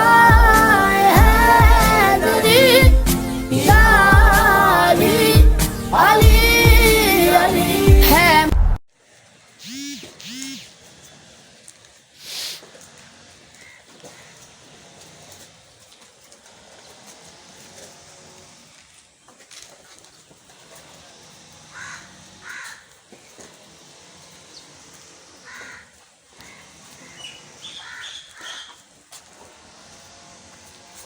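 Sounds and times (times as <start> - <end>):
birds calling: 13.5 - 14.5, 21.7 - 23.4, 24.4 - 29.0.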